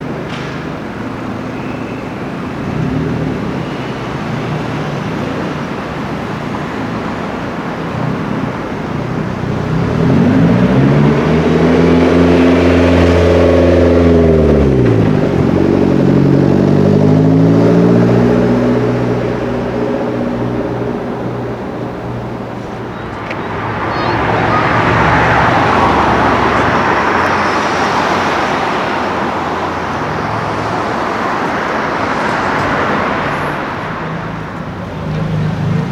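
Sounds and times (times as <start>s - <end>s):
street traffic: 0.0s - 35.9s
car engine revving hard: 2.4s - 22.9s.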